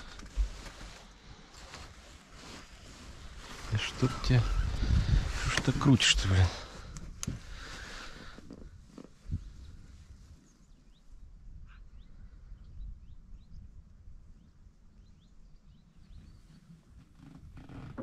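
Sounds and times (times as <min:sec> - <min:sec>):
small birds chirping: 0:07.6 - 0:17.2.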